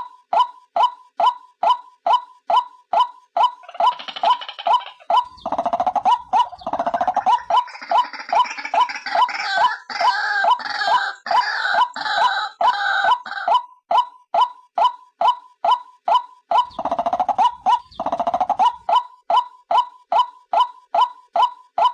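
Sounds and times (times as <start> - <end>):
waterhen short repeated calls: 3.4 - 13.6, 16.5 - 20.3
harsh chorus of bird calls: 3.6 - 13.6, 16.6 - 18.9.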